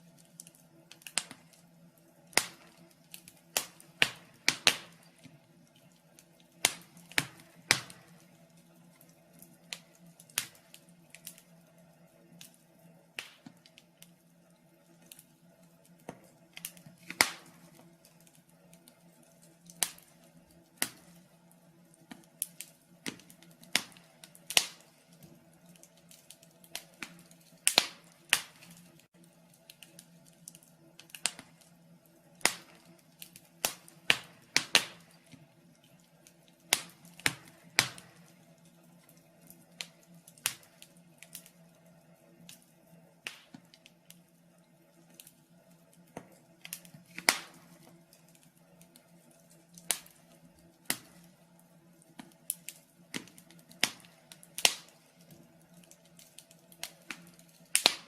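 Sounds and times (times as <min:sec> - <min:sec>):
faint steady hum: 0:00.0 - 0:58.0
wood fire crackling: 0:00.0 - 0:58.0
sharp pops of fire: 0:00.2 - 0:11.6, 0:12.4 - 0:14.2, 0:15.9 - 0:29.1, 0:29.7 - 0:41.6, 0:43.2 - 0:44.3, 0:46.0 - 0:48.3, 0:48.9 - 0:51.4, 0:52.1 - 0:58.0.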